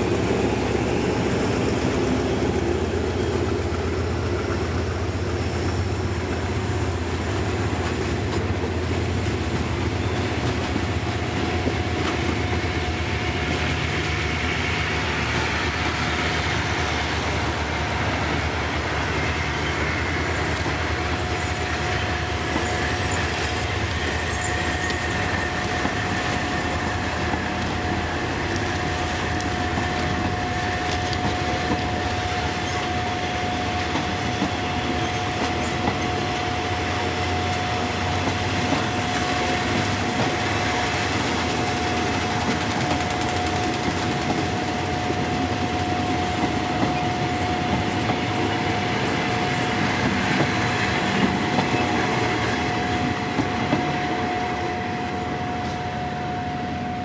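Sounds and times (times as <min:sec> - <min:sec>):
train wheels rolling on rails: 0:00.0 - 0:57.0.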